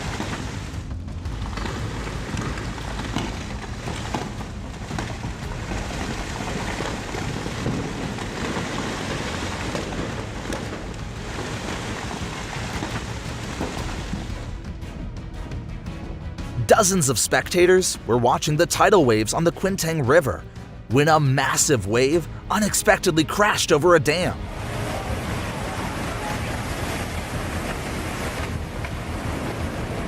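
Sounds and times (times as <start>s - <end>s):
tidal wave crashing over dam: 1.4s - 14.4s, 21.0s - 30.0s.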